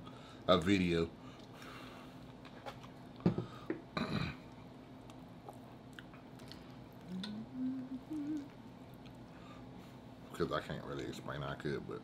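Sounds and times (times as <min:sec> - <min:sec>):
chewing and mouth clicks: 0:04.5 - 0:07.4, 0:08.2 - 0:09.3
person humming mmm: 0:07.0 - 0:08.6.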